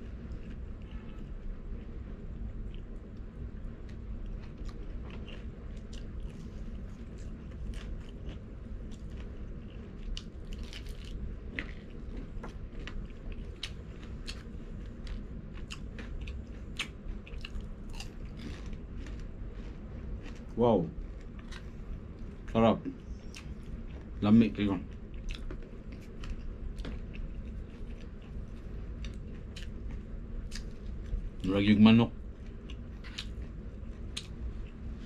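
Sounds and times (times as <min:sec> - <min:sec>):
chewing crispy fried chicken: 0:00.0 - 0:35.0.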